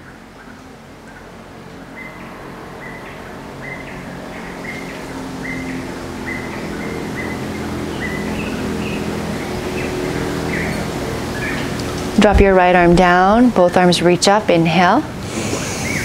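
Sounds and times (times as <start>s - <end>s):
bird call: 15.3s - 16.0s.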